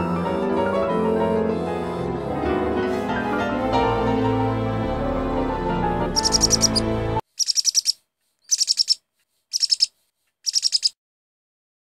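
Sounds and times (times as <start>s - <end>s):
background music: 0.0s - 7.2s
bird chirping rapidly: 6.2s - 11.0s.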